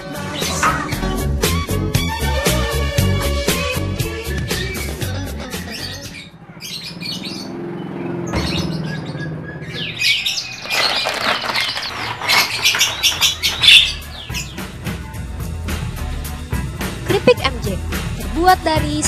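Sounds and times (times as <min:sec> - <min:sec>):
birds chirping and twittering: 0:00.0 - 0:01.7, 0:04.1 - 0:15.6
faint background music: 0:13.2 - 0:19.0.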